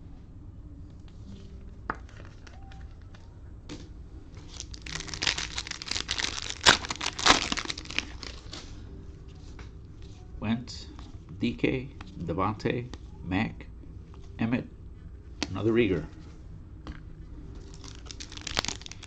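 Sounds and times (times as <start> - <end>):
cellophane wrapper crinkling and tearing: 4.4 - 8.6, 17.6 - 19.0.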